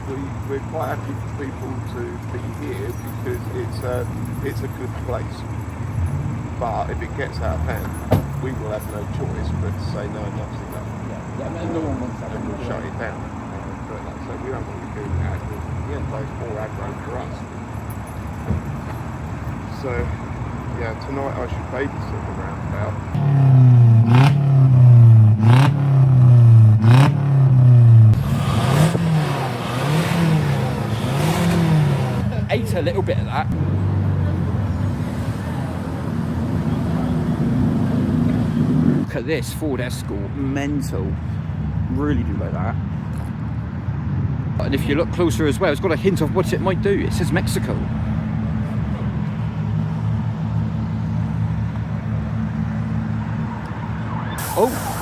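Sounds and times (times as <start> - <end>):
exhaust crack: 0.0 - 35.7, 54.4 - 55.0
car engine revving: 0.0 - 39.2, 44.6 - 55.0.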